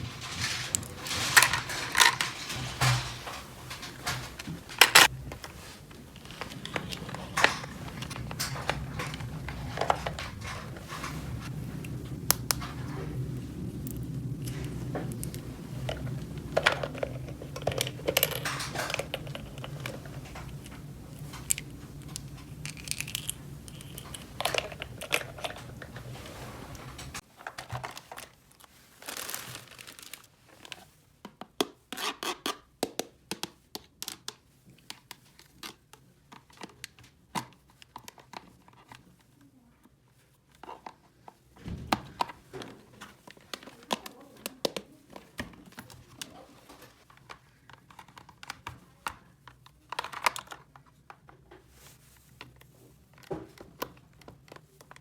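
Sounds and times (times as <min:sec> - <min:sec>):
low steady hum: 0:00.0 - 0:27.2
packaging crinkling and tearing: 0:14.4 - 0:30.8.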